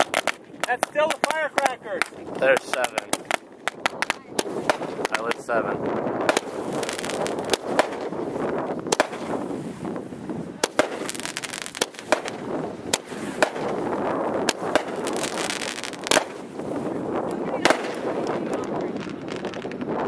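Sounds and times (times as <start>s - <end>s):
continuous crackling hiss: 0.0s - 20.0s
firecrackers banging: 0.0s - 20.0s.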